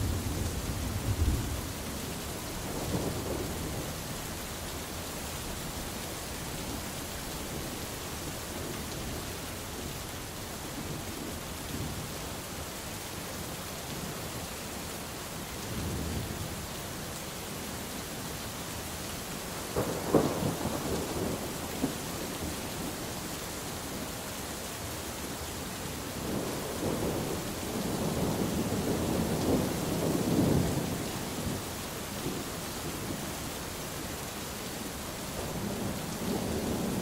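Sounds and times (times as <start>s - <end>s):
rain falling: 0.0s - 37.0s
thunder rumbling: 19.8s - 23.0s.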